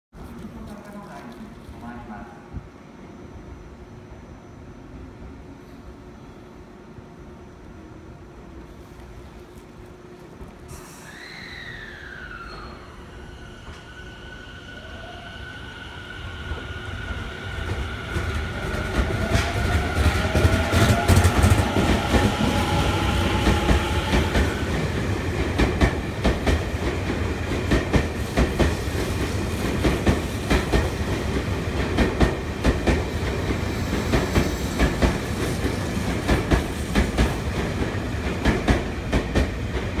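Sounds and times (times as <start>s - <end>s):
train rumble: 5.0s - 40.0s
train wheels clattering on rails: 17.5s - 40.0s.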